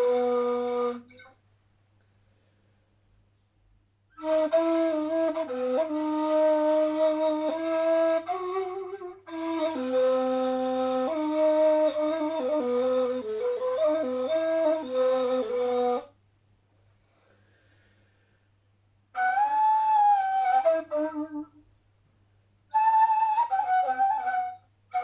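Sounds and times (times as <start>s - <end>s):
solo flute improvising: 0.0s - 1.4s, 4.1s - 16.2s, 19.1s - 21.7s, 22.7s - 25.0s
flute player breath: 17.0s - 18.6s.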